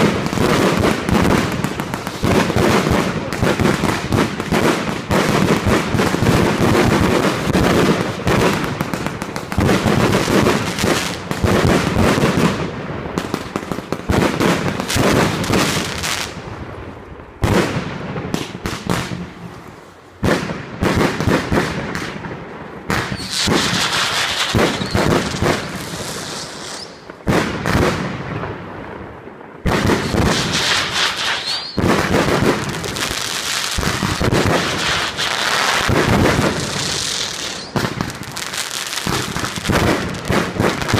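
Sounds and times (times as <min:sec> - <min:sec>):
fireworks bangs: 0:00.0 - 0:40.9
high crackling hiss: 0:23.0 - 0:27.3, 0:29.8 - 0:40.9.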